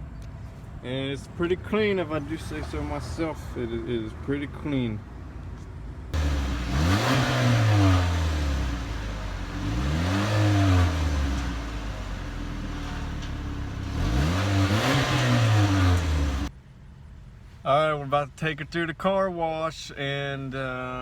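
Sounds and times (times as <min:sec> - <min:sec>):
car engine revving: 0:06.2 - 0:16.5.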